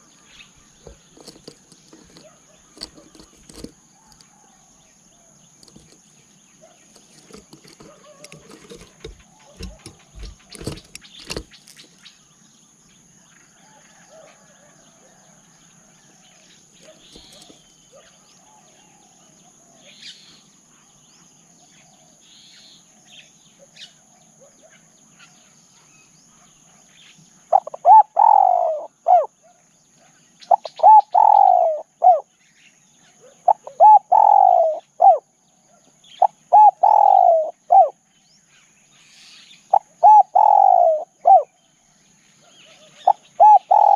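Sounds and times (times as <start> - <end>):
dove cooing: 0.8 - 4.2, 6.6 - 11.5, 16.8 - 18.0, 27.5 - 29.3, 30.5 - 32.2, 33.2 - 35.2, 36.2 - 38.0, 39.7 - 41.5, 42.7 - 43.9
faint small bird chirps: 16.0 - 43.9.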